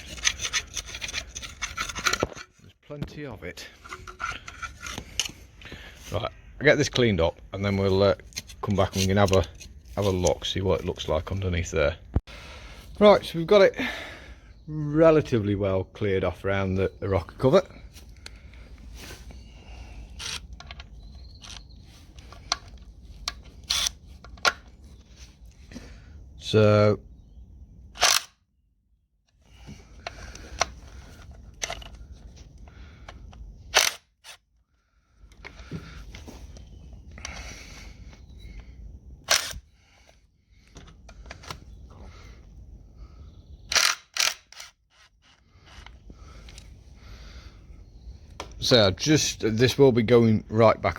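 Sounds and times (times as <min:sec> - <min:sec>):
metal scraping: 0:00.0 - 0:02.8, 0:03.6 - 0:05.5
rustling and scraping: 0:00.0 - 0:06.3, 0:07.6 - 0:11.4, 0:17.8 - 0:26.0, 0:35.4 - 0:38.7.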